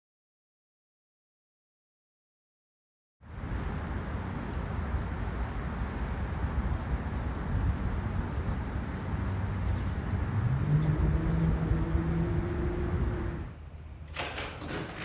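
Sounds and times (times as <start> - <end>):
low rumbling background noise: 3.3 - 15.0
low humming tone rising: 8.0 - 13.7.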